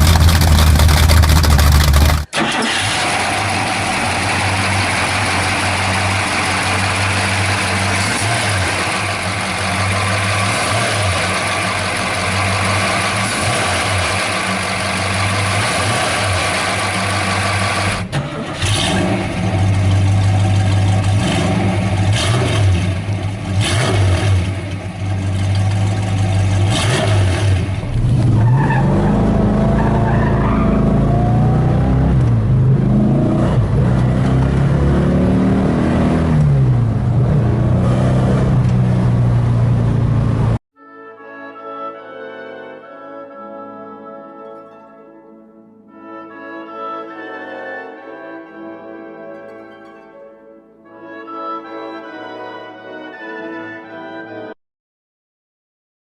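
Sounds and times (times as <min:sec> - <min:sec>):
car engine running: 0:00.0 - 0:40.6
engine throttle blips: 0:00.0 - 0:40.6.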